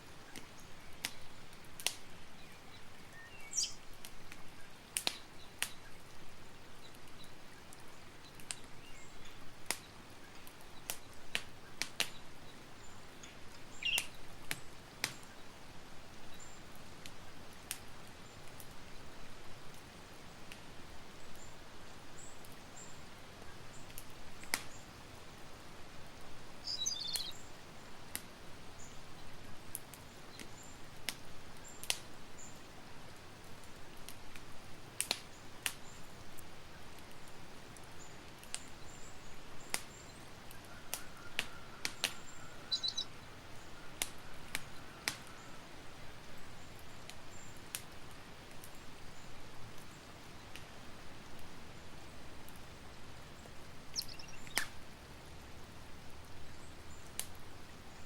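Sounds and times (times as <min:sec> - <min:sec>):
campfire crackling: 0:00.0 - 0:58.0
faint bird chirps: 0:02.4 - 0:03.8, 0:12.1 - 0:14.2, 0:26.6 - 0:27.6, 0:39.9 - 0:45.6, 0:53.9 - 0:54.8.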